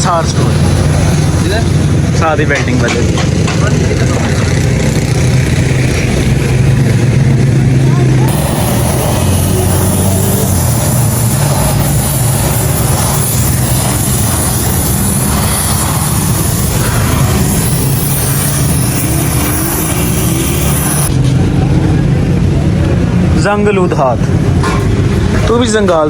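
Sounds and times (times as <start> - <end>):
engine running: 0.0 - 26.0
high hiss: 8.3 - 21.1.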